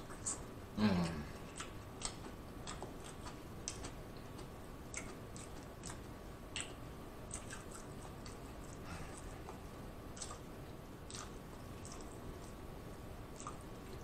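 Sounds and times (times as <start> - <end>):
fingers picking through food: 0.0 - 12.6, 13.3 - 14.0
chewing seafood: 0.0 - 14.0
wet mouth clicks: 1.0 - 9.6, 10.2 - 10.5.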